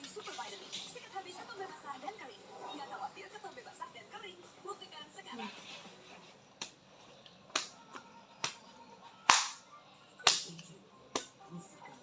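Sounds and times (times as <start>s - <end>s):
sharp snapping clicks: 7.6s - 7.8s, 9.3s - 9.6s, 10.3s - 11.4s.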